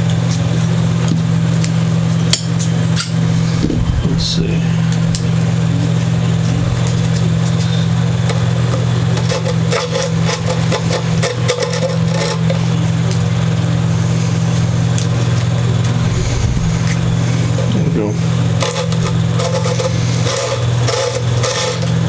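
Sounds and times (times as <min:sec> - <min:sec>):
steady low hum: 0:02.2 - 0:08.8, 0:12.6 - 0:20.4.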